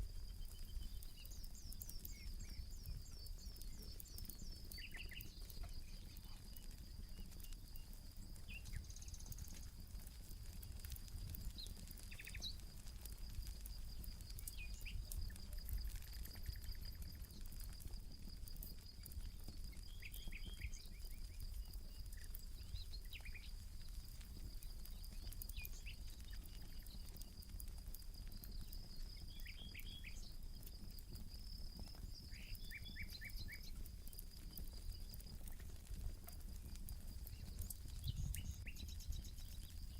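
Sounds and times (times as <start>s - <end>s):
campfire crackling: 0.0s - 39.9s
birds chirping: 0.2s - 9.6s, 31.8s - 35.7s, 36.5s - 39.9s.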